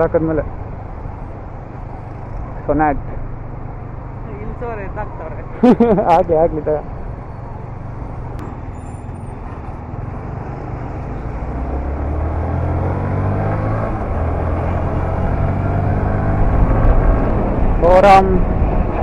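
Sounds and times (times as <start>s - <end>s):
motorcycle engine revving: 9.3s - 19.0s.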